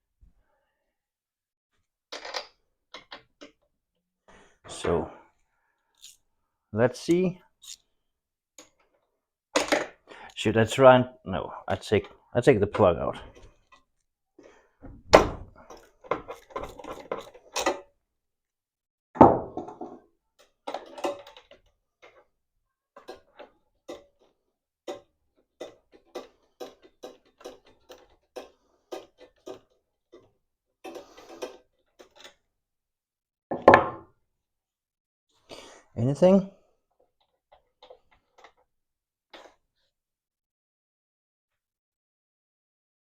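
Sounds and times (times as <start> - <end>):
wrench clicking: 6.0 - 6.2
tool knocks and thumps: 14.8 - 17.8, 19.2 - 20.0, 33.5 - 34.1.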